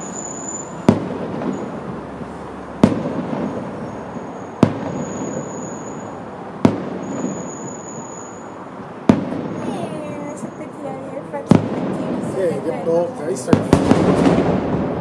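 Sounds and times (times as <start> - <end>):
firework shells bursting: 2.8 - 10.6, 13.4 - 15.0.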